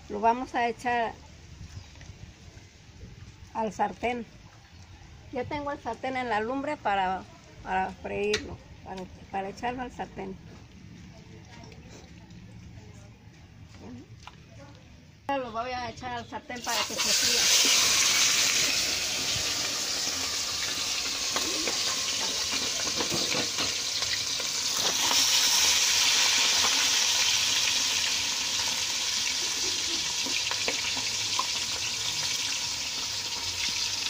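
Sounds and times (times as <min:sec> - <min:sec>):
chicken sizzling in hot oil: 0:16.6 - 0:34.0.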